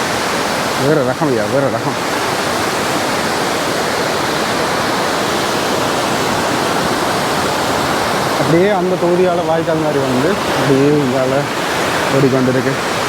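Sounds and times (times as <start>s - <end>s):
stream running: 0.0s - 13.0s
waterfall rushing: 0.0s - 13.0s.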